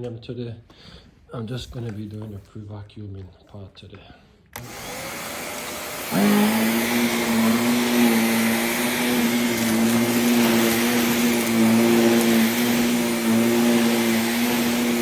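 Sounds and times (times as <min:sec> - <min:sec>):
vacuum cleaner running: 0:04.6 - 0:15.0.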